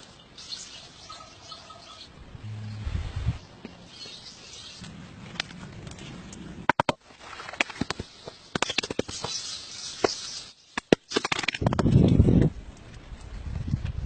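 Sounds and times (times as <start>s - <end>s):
faint hiss: 7.1s - 11.2s.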